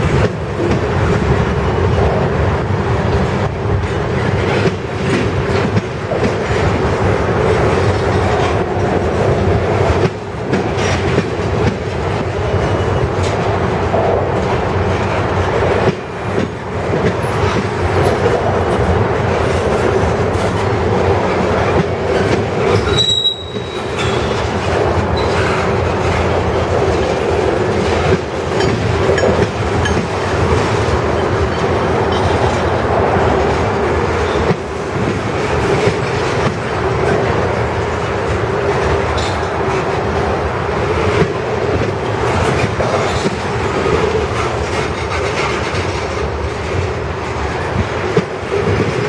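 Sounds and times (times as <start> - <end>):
freight train wheels rumbling: 0.0 - 49.0
high wheel squeal: 22.7 - 24.5.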